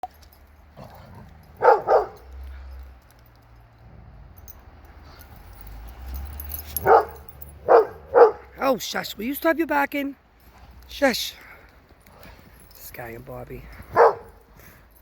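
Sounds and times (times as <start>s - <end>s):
dog barking: 1.6s - 2.2s, 6.8s - 8.6s, 13.9s - 14.4s.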